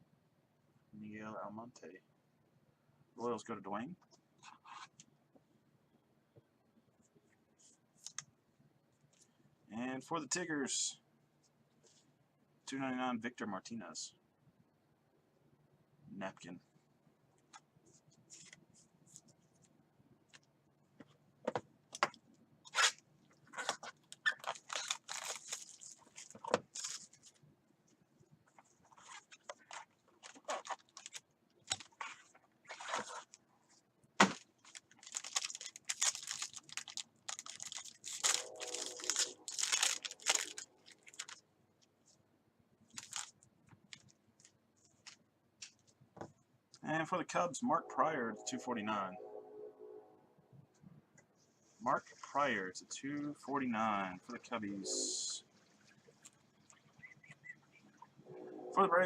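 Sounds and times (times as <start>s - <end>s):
wrapper tearing and crinkling: 23.6s - 27.2s, 29.0s - 32.1s, 34.2s - 41.4s, 42.9s - 44.0s.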